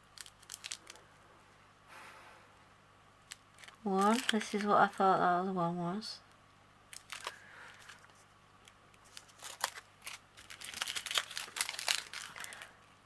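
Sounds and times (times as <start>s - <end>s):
plastic bags crinkling: 0.0s - 1.0s, 3.2s - 5.1s, 6.9s - 12.8s.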